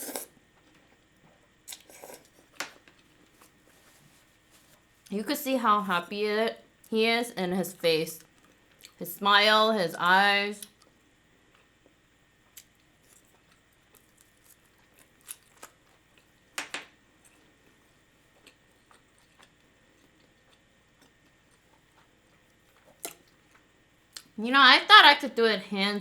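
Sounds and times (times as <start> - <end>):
chewing and mouth clicks: 1.7 - 3.2, 8.2 - 9.0, 10.6 - 16.4, 17.2 - 24.4.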